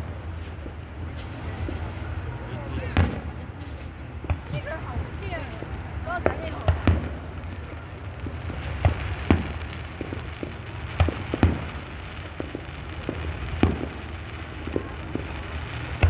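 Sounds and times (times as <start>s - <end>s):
fireworks booming and popping: 0.0s - 16.0s.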